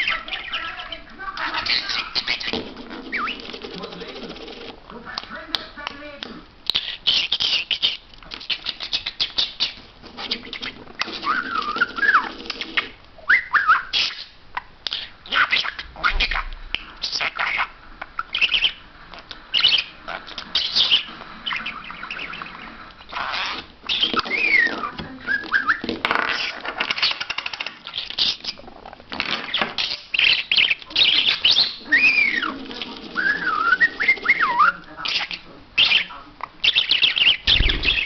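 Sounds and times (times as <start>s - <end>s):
talking bird chattering: 0.0s - 5.9s, 6.7s - 18.8s, 19.5s - 38.0s
bird whistles: 1.8s - 3.6s, 6.8s - 14.3s, 18.3s - 18.8s, 19.5s - 27.2s, 29.8s - 32.6s, 33.2s - 38.0s.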